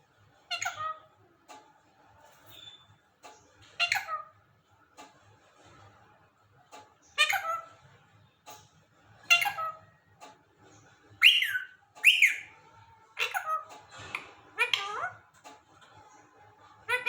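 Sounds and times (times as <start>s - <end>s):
parakeet whistles and squawks: 0.4s - 1.2s, 2.3s - 4.4s, 7.0s - 7.9s, 9.2s - 10.1s, 11.0s - 15.4s, 16.6s - 17.0s.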